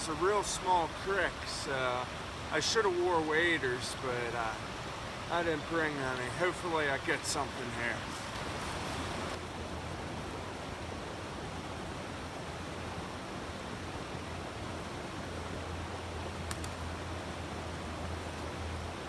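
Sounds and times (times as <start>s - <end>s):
creek water rushing: 0.0s - 19.0s.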